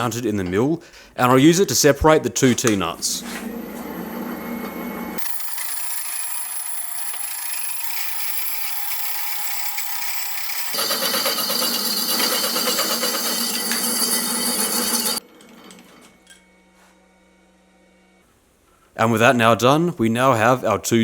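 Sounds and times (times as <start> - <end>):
saw cutting through steel: 5.2 - 16.4.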